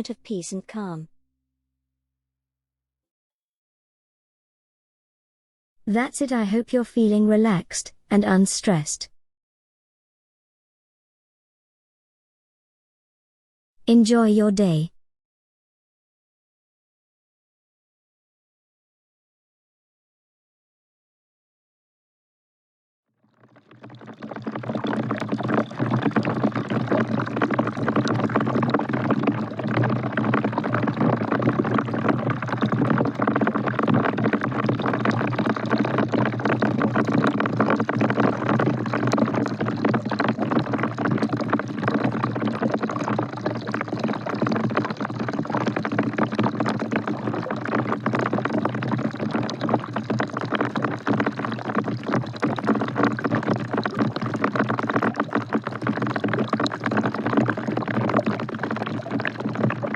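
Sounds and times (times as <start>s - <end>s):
rain falling into a bucket: 23.4s - 59.9s.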